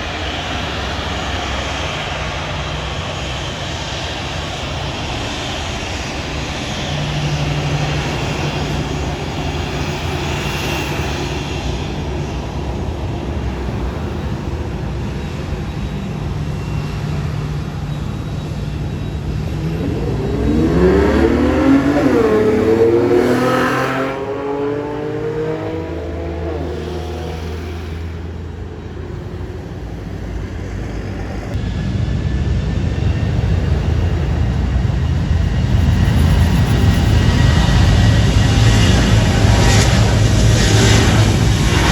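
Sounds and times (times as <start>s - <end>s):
vehicle engine accelerating: 3.1s - 31.7s.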